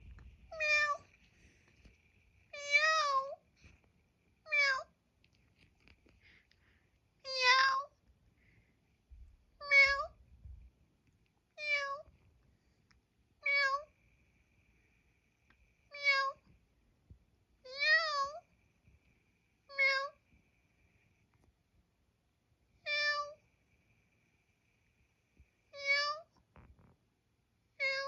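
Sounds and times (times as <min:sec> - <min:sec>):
cat meowing: 0:00.5 - 0:01.1, 0:02.6 - 0:03.4, 0:04.5 - 0:04.9, 0:07.2 - 0:07.9, 0:09.6 - 0:10.2, 0:11.6 - 0:12.1, 0:13.4 - 0:13.9, 0:15.9 - 0:16.5, 0:17.7 - 0:18.4, 0:19.7 - 0:20.2, 0:22.8 - 0:23.4, 0:25.8 - 0:26.3, 0:27.8 - 0:28.0.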